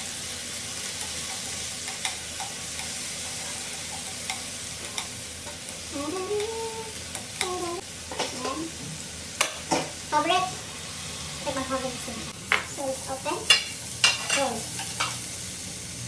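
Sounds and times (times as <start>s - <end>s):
vegetables sizzling in oil: 0.0s - 16.0s
chopsticks ticking against pan: 1.0s - 5.6s, 6.3s - 7.6s.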